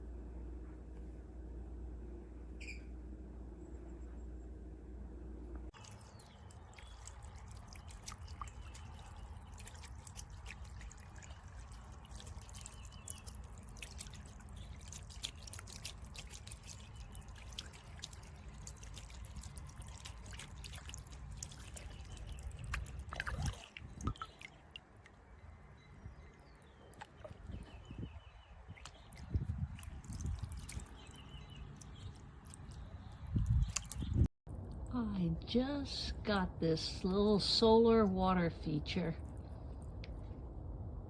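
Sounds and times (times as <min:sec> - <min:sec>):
water dripping and trickling: 0:05.7 - 0:40.2
fountain water splashing: 0:05.8 - 0:24.3.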